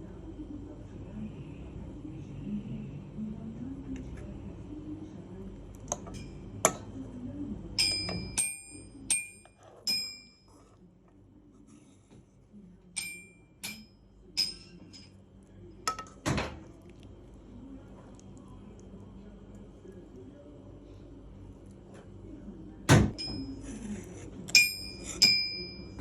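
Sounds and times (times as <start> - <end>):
utensil clinking against a dish: 5.9 - 6.9, 7.8 - 10.8, 12.9 - 15.2, 15.8 - 16.6, 23.1 - 26.0.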